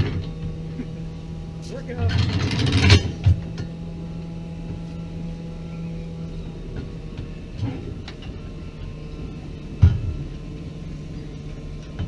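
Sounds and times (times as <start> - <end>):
low engine hum: 0.0 - 12.0
knocks and clunks: 9.7 - 10.4.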